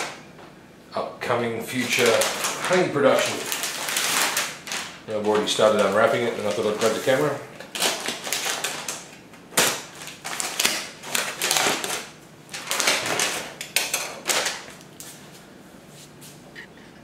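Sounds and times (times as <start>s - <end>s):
packaging crinkling and rustling: 1.7s - 15.3s.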